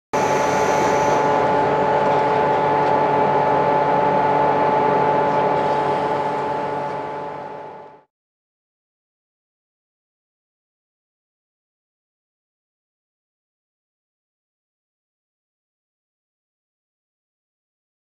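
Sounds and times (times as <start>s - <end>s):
electric train hum: 0.2s - 8.1s.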